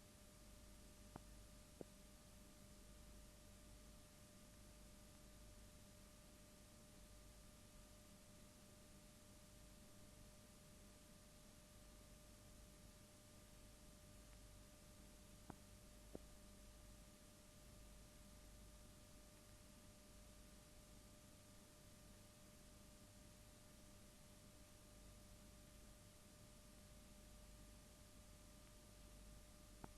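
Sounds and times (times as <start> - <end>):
faint hum and hiss: 0.0 - 29.9.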